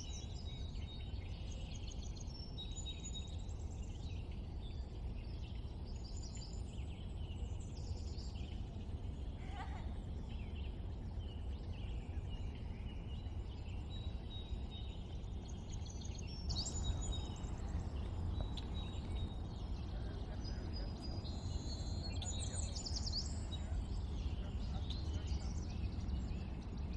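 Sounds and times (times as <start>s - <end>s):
low background rumble: 0.0s - 26.9s
birds chirping and whistling: 10.4s - 26.9s.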